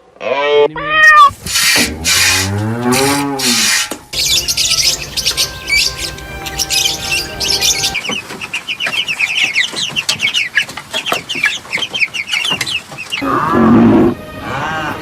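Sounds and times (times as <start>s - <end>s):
chickens clucking: 0.6s - 14.2s.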